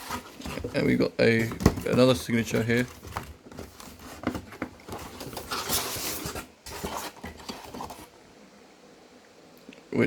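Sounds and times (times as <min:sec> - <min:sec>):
rustling of unpacking: 0:00.0 - 0:08.2.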